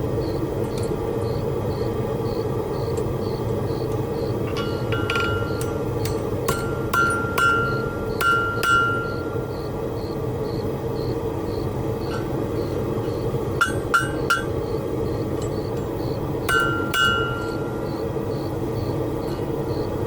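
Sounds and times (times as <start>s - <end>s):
hammer striking anvil: 4.5s - 9.6s, 13.6s - 14.6s, 16.5s - 17.8s.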